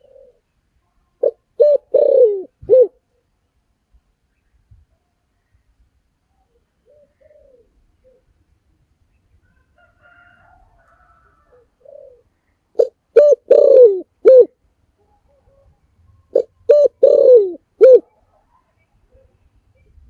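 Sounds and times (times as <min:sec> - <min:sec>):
dove cooing: 0:00.0 - 0:00.5, 0:01.2 - 0:03.2, 0:06.5 - 0:08.5, 0:09.5 - 0:18.4.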